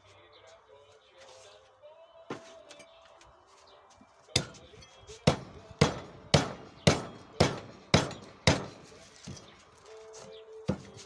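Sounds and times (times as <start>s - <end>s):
axe chopping wood: 4.4s - 9.5s, 10.7s - 11.0s.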